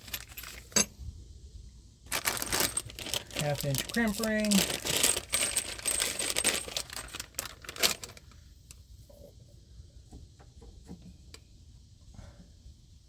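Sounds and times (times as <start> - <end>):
metal rings jingling and clattering: 0.0 - 0.9, 2.3 - 8.2.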